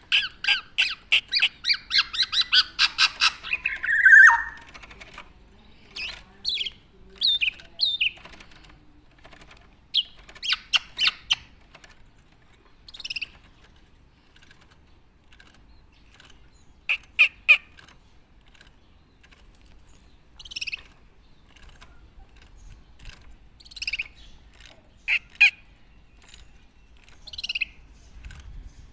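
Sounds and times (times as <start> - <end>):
oriole calling: 0.1 - 4.7.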